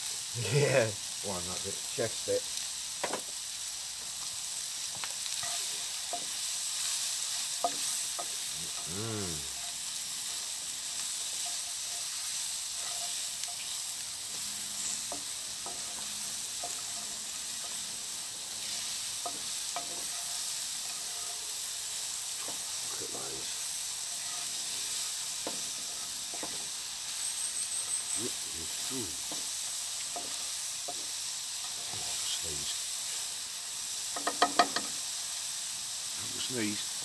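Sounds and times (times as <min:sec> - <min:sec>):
food sizzling in a pan: 0:00.0 - 0:37.0
spatula scraping a pan: 0:05.3 - 0:17.9, 0:18.5 - 0:21.8, 0:23.9 - 0:26.8, 0:34.1 - 0:35.0.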